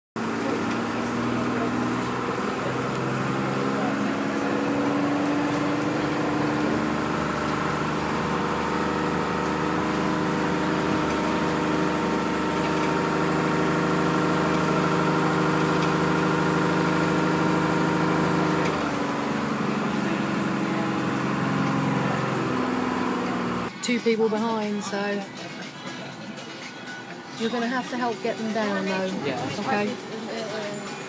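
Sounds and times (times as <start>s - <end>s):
vehicle engine idling: 0.2s - 23.7s.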